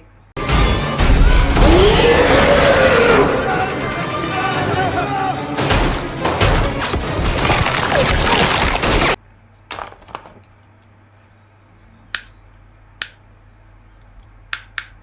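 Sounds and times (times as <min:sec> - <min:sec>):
plastic clicks and snaps: 0:14.0 - 0:15.0.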